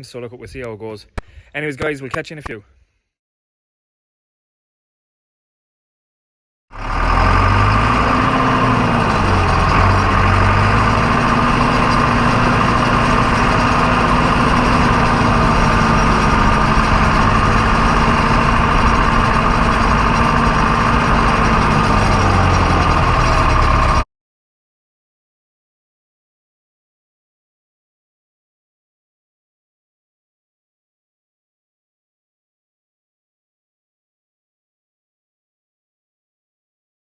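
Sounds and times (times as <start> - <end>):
tractor engine running: 6.8 - 24.0.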